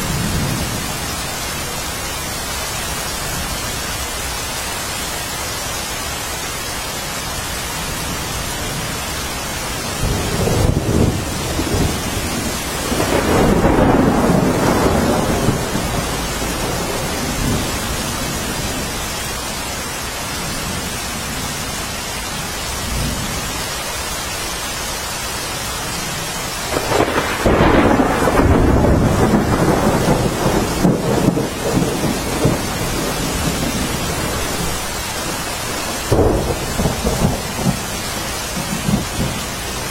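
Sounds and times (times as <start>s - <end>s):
steady rain: 0.0s - 39.9s
thunder rolling: 9.9s - 19.0s, 26.7s - 39.9s.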